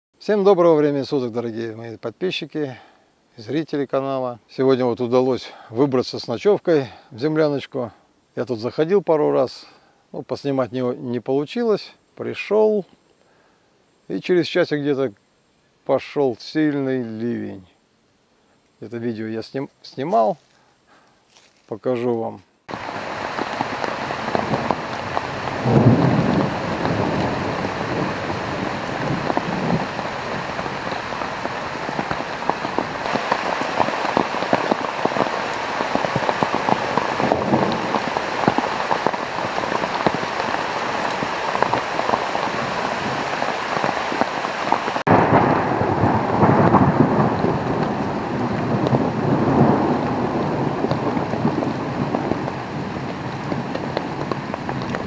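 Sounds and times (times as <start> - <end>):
heavy rain pouring: 22.7 - 55.0
thunder rumbling: 22.7 - 55.0.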